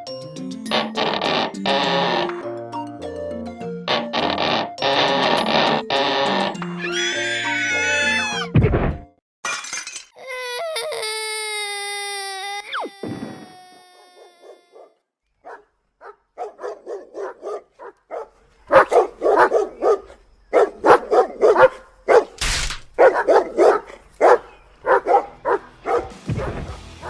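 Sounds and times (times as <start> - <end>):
dog barking: 14.4 - 22.4, 23.0 - 26.6.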